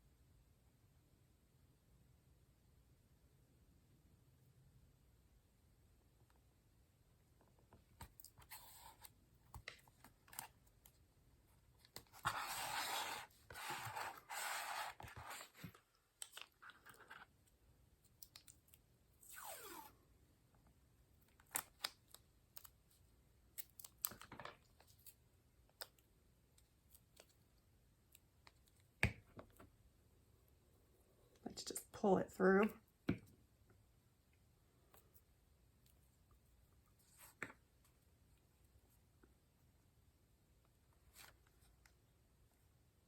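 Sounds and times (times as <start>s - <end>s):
paper scraping and rustling: 12.1s - 15.8s
paper sliding: 12.1s - 15.8s.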